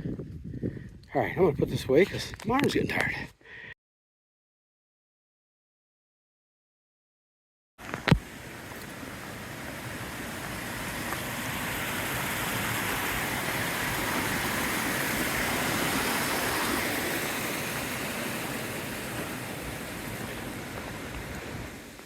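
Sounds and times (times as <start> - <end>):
running water rushing: 7.8 - 22.0.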